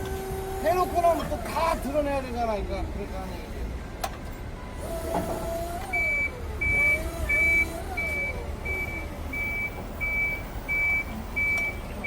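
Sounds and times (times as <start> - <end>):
reversing alarm beeping: 5.9 - 11.8.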